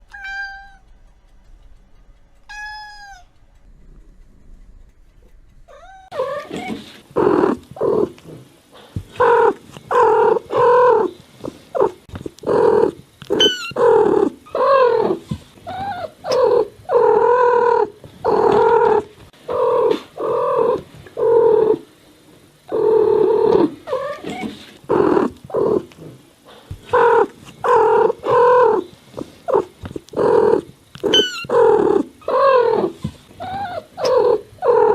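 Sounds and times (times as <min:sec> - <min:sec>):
cat meowing: 0:00.0 - 0:00.8, 0:02.5 - 0:03.4, 0:05.7 - 0:06.9, 0:13.3 - 0:14.0, 0:29.5 - 0:34.9.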